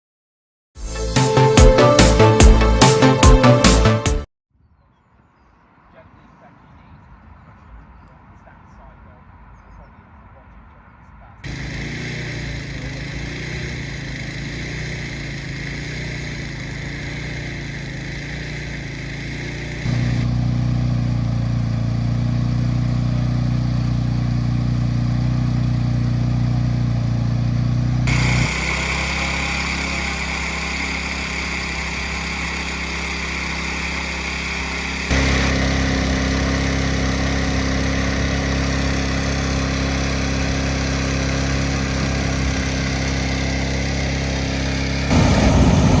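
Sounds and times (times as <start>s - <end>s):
small petrol engine fan running: 11.4s - 46.0s.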